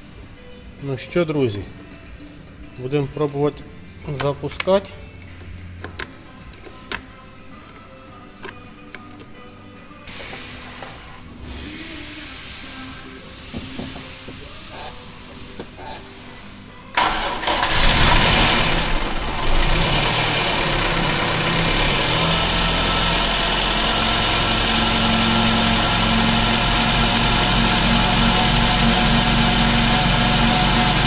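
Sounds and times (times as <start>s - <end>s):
car engine starting and idling: 17.0s - 31.0s.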